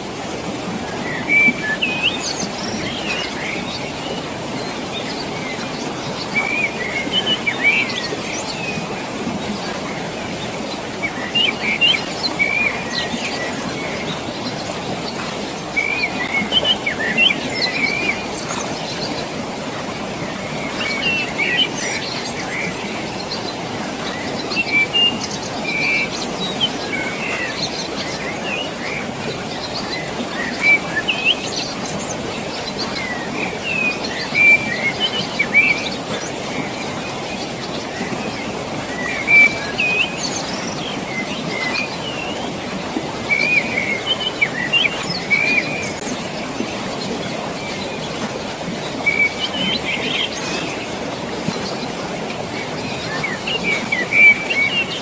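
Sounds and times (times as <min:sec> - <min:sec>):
water rushing: 0:00.0 - 0:55.0
small birds chirping: 0:20.6 - 0:55.0.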